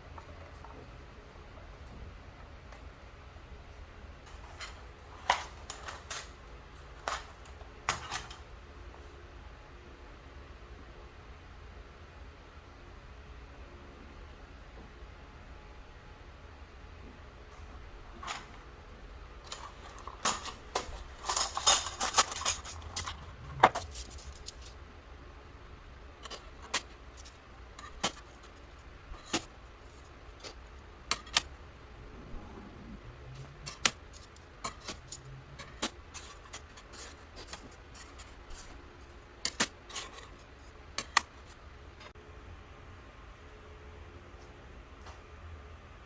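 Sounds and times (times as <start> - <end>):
small hard parts rattling: 19.4 - 24.8, 26.2 - 31.6, 33.3 - 42.1.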